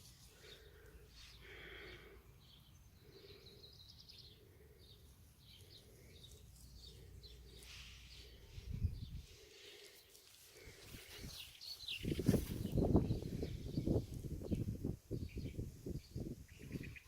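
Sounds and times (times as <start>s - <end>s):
distant birds chirping: 0.0s - 17.0s
wind on microphone: 8.6s - 9.4s, 12.0s - 17.0s.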